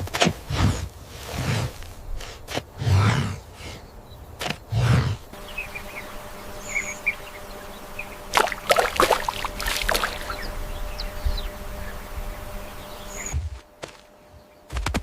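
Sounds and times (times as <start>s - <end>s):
deep breathy animal sound: 0.5s - 4.1s, 4.7s - 5.4s
faint steady hum: 5.2s - 14.7s
small bird chirps: 5.4s - 13.4s.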